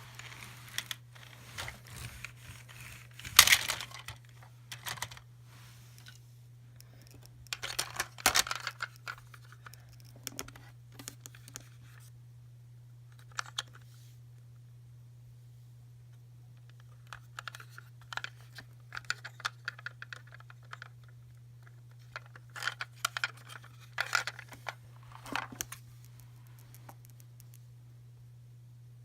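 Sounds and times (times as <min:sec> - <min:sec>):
packaging crinkling: 0:00.0 - 0:05.2
low electrical hum: 0:00.0 - 0:29.0
plastic toys clicking: 0:01.9 - 0:05.2, 0:07.0 - 0:09.2.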